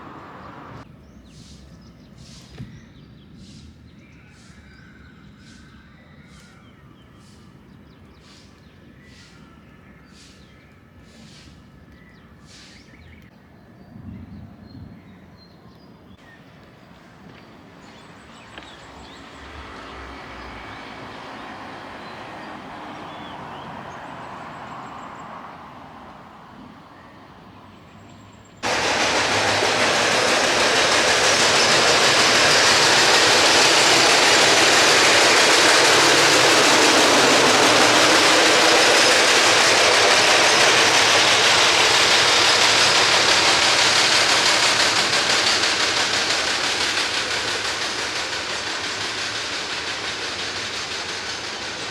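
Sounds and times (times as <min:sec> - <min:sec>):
train passing: 0:00.0 - 0:00.9, 0:16.2 - 0:51.9.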